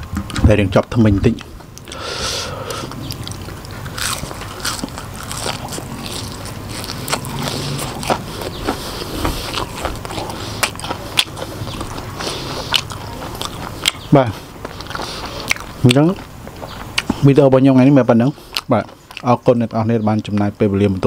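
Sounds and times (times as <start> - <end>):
person chewing crunchy food: 1.3 - 19.4.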